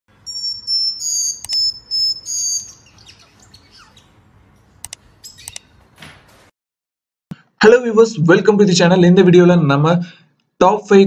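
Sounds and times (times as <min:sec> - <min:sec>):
bird chirping: 0:00.1 - 0:05.8
sharp clicks: 0:04.8 - 0:05.7.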